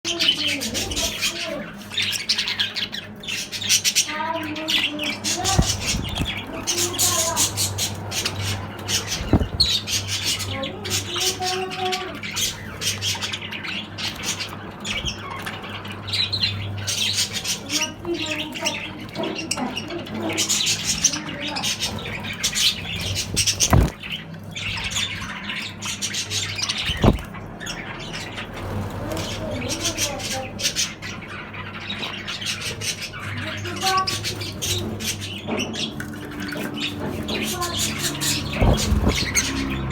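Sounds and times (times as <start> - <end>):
flock of birds chirping: 0.0 - 39.9
low thumps: 9.1 - 9.8, 38.4 - 39.9.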